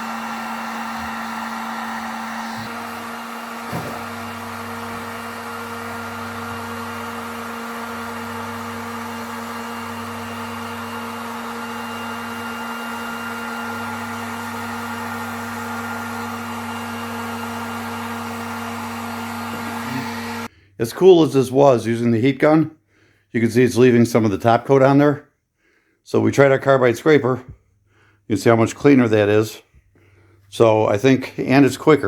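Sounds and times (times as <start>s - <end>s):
heat gun fan humming: 0.0s - 20.5s.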